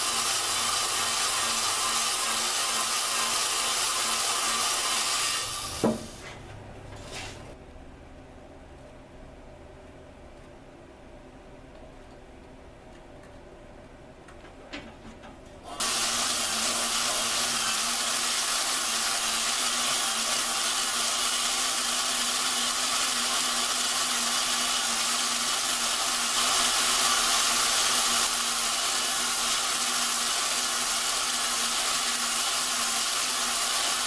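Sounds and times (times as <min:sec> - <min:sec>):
drill motor hum: 0:00.0 - 0:06.4, 0:15.8 - 0:34.0
valve grinding hiss: 0:00.0 - 0:06.4, 0:15.7 - 0:34.0.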